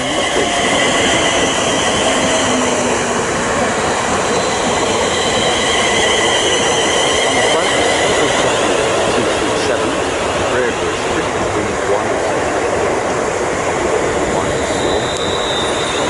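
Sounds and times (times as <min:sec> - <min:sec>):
high squealing tones: 0:00.0 - 0:09.4, 0:14.2 - 0:16.0
train wheels rumbling on rail: 0:00.0 - 0:16.0.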